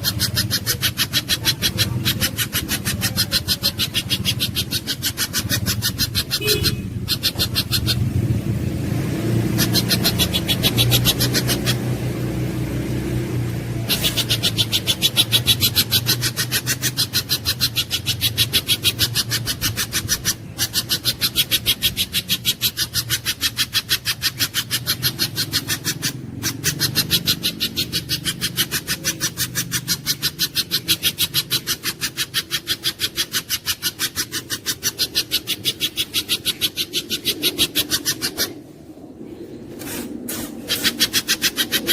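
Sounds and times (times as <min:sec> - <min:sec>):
bird giving sharp high notes: 0:06.2 - 0:07.0.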